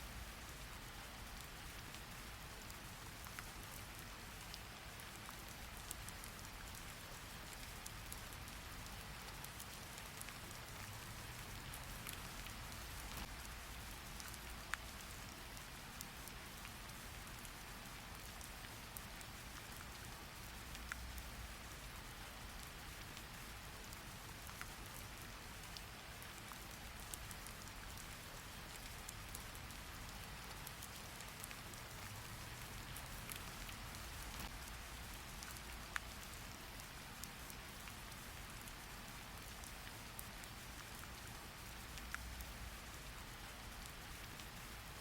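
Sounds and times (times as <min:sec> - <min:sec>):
rain falling: 0:00.0 - 0:45.0.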